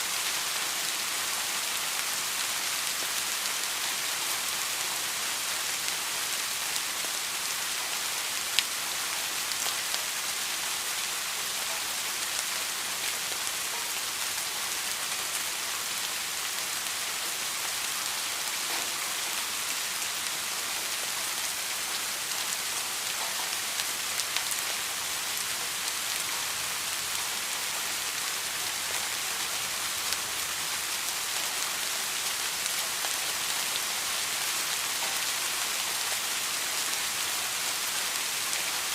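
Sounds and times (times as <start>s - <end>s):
rain falling on a surface: 0.0s - 38.9s.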